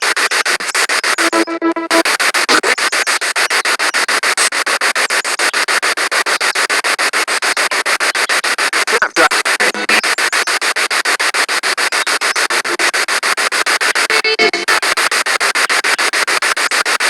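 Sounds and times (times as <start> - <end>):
pulsing radio static: 0.0 - 17.0
radio station tone: 1.0 - 3.2, 8.1 - 10.5.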